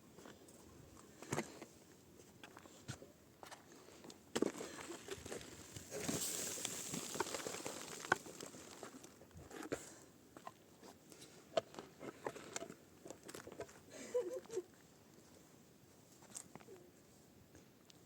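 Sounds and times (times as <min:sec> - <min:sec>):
footsteps: 0:04.4 - 0:09.0
rustling hiss: 0:04.6 - 0:09.2.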